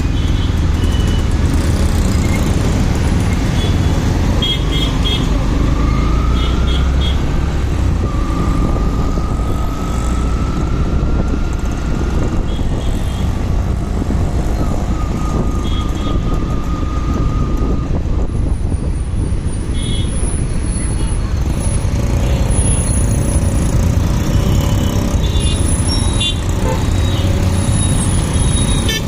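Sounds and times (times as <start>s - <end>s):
wind and road noise: 0.0s - 29.0s.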